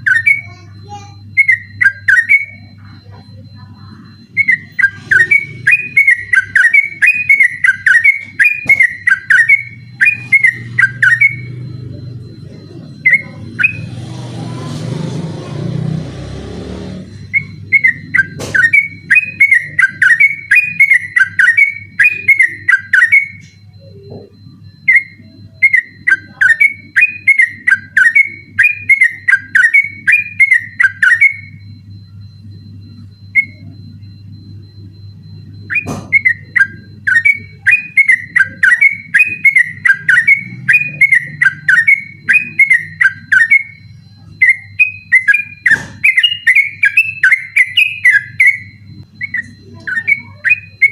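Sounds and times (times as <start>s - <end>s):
bird whistling rapid notes: 44.4s - 50.9s.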